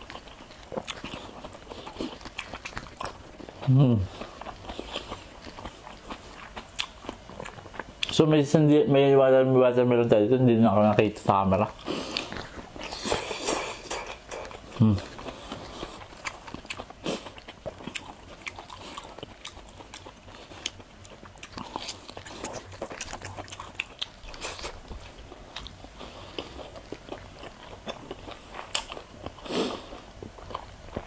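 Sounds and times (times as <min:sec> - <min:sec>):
crunching and chewing: 0:00.0 - 0:08.3, 0:11.0 - 0:31.0.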